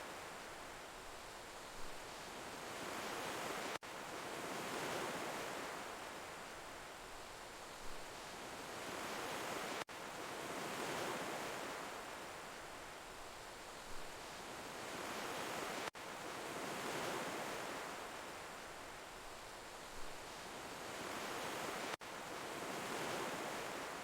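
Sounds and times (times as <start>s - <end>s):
ocean waves washing on shore: 0.0s - 24.0s.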